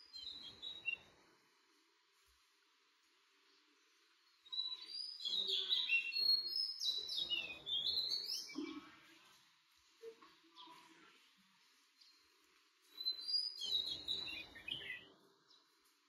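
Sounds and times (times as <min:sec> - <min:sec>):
birds chirping and singing: 0:00.0 - 0:01.1, 0:04.3 - 0:09.0, 0:12.8 - 0:15.7.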